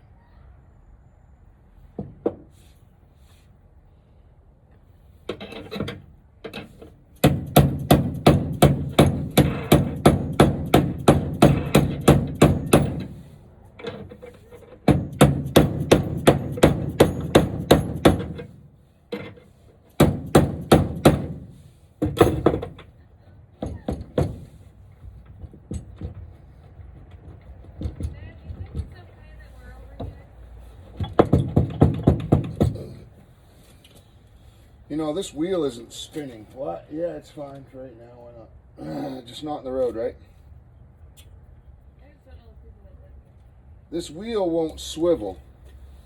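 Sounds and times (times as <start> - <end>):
hammer blows on wood: 7.2 - 13.4, 14.8 - 18.7, 20.0 - 22.8.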